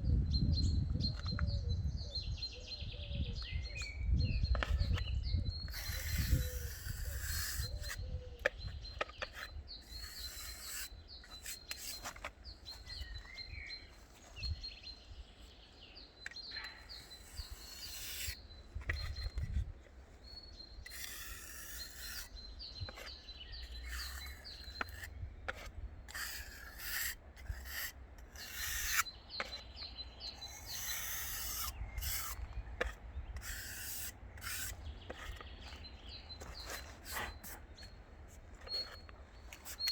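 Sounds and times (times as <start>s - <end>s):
birds chirping: 0.0s - 39.9s
rough scraping strokes: 5.7s - 8.0s, 9.0s - 14.5s, 16.5s - 39.9s.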